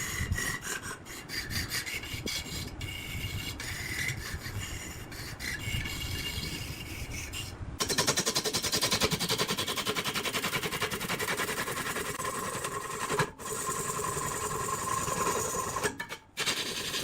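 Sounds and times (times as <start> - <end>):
tool scraping on wood: 0.0 - 17.0
machine rattling rapidly: 7.8 - 17.0.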